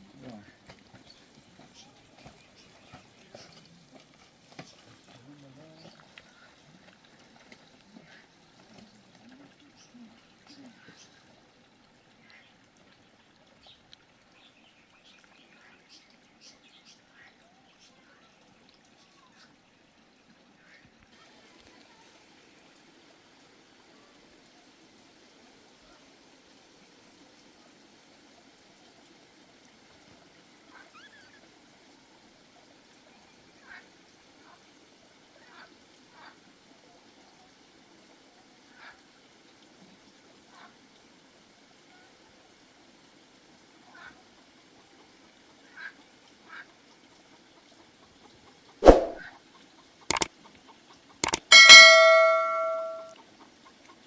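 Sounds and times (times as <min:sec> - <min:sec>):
stream water flowing: 0:00.0 - 0:20.6, 0:48.8 - 0:49.2
sharp clicks: 0:51.2 - 0:53.1
high rising and falling call: 0:51.5 - 0:53.1.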